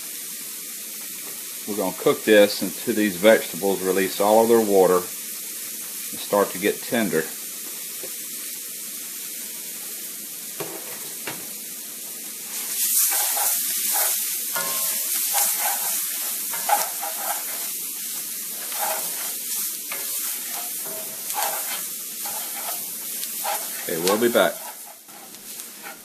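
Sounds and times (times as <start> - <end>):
vegetables sizzling in a skillet: 0.0 - 26.0
wooden spoon scraping a pan: 12.5 - 26.0.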